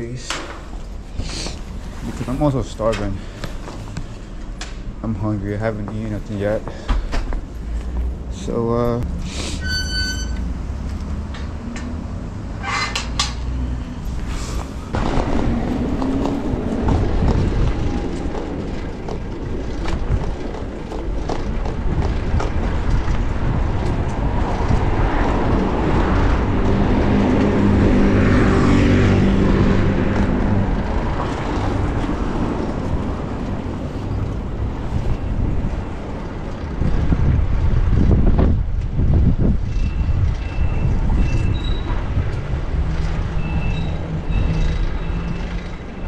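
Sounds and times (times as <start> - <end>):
wind on microphone: 14.0 - 45.0
vehicle engine passing: 22.1 - 38.1.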